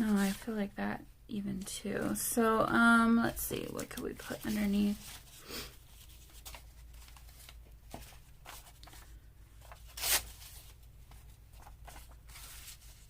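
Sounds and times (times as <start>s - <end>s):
paper rustling and sliding: 3.6s - 13.0s.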